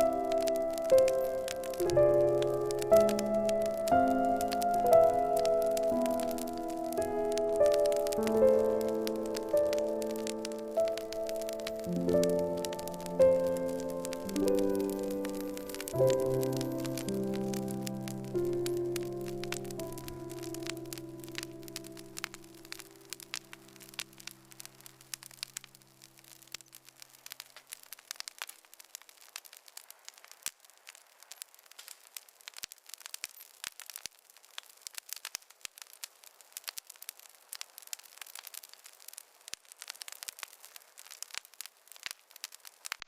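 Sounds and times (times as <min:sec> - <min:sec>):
soft background music: 0:00.0 - 0:24.7
wood fire crackling and popping: 0:00.0 - 0:43.0.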